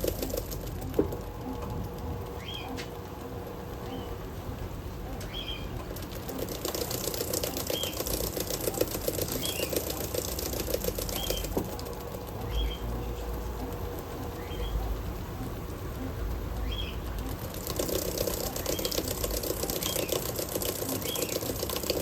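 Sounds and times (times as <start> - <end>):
water and cloth churning: 0.0 - 2.0, 5.7 - 14.1, 16.4 - 22.0
rapid crackling: 0.0 - 22.0.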